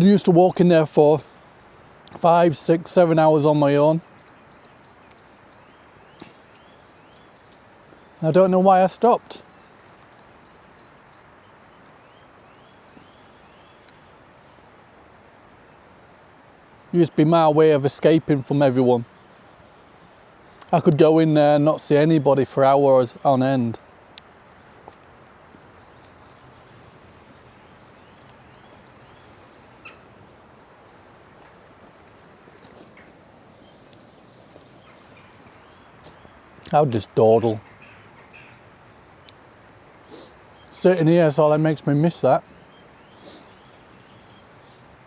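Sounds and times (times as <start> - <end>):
bird chirping: 0.0 - 14.8, 15.6 - 45.0
outdoor hiss: 0.0 - 45.0
thin high bird trill: 24.7 - 31.2, 32.1 - 36.6.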